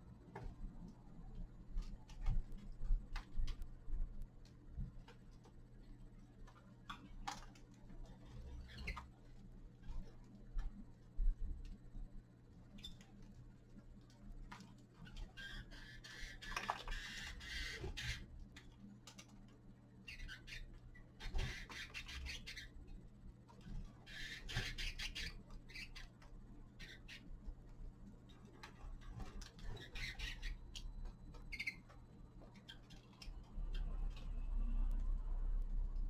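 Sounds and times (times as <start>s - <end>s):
finches pecking clicks and scratches: 0.3s - 11.8s, 12.6s - 35.1s
finches chirping: 15.0s - 18.3s, 20.0s - 22.8s, 24.0s - 27.3s, 29.5s - 34.4s.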